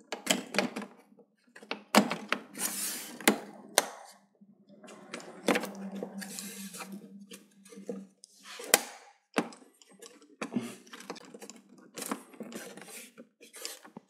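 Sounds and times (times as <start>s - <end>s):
low steady hum: 3.3s - 8.4s
clicks and scraping of plastic and metal: 7.7s - 14.0s.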